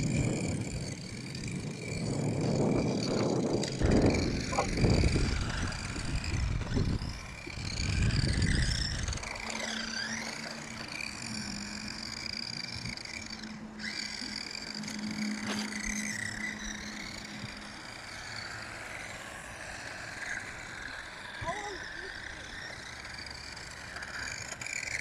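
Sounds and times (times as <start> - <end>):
electric toy car motor whine: 0.0 - 25.0.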